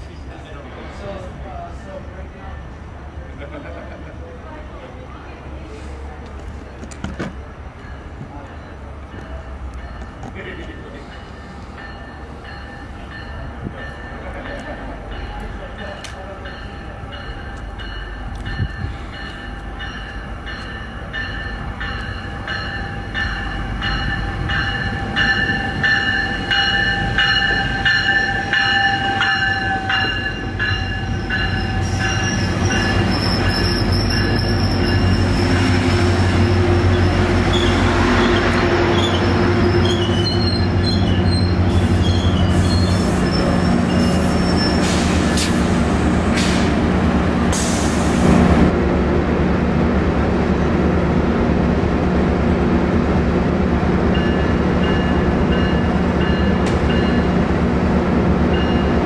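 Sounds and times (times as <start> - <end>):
train coaches rumbling past: 0.0 - 59.0
wheel and brake squeal: 31.6 - 35.6, 36.9 - 45.4.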